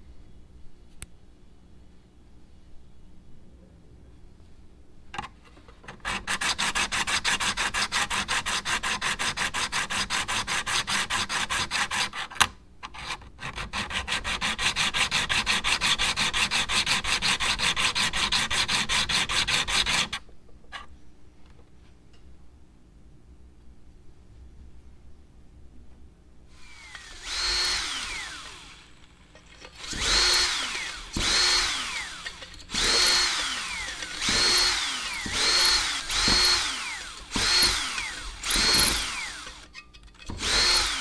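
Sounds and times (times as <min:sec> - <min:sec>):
hand filing on metal: 0:06.0 - 0:12.3, 0:13.0 - 0:20.9.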